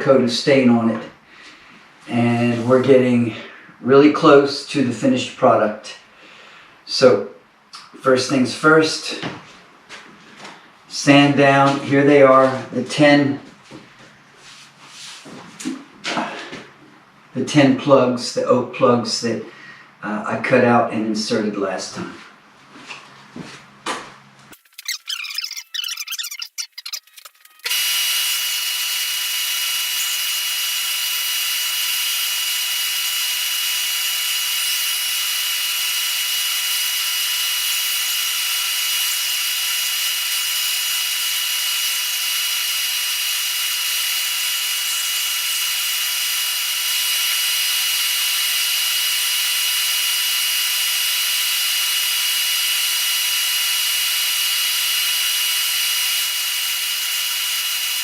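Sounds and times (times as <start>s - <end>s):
electric power sander whining: 24.6s - 58.0s.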